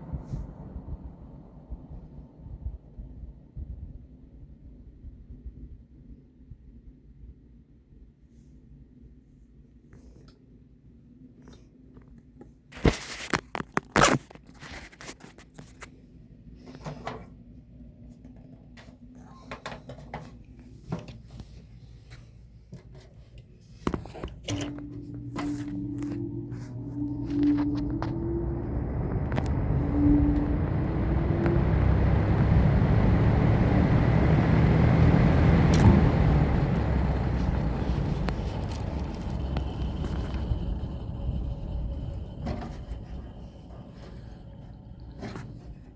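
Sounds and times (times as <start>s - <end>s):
faint steady hum: 20.9s - 45.9s
box fan running: 23.8s - 45.9s.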